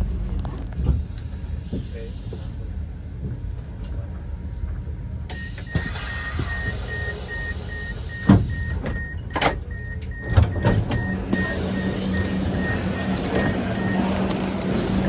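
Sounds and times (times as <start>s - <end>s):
electronic warning beeps: 5.3s - 14.3s.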